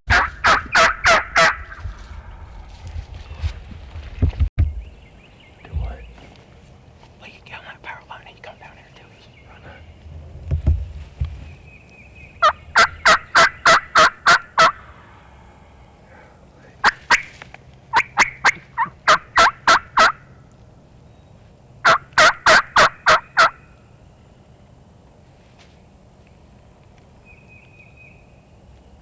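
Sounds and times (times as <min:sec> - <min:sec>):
turkey yelping: 0:00.1 - 0:02.3, 0:12.4 - 0:15.1, 0:16.8 - 0:17.3, 0:17.9 - 0:20.3, 0:21.8 - 0:23.7.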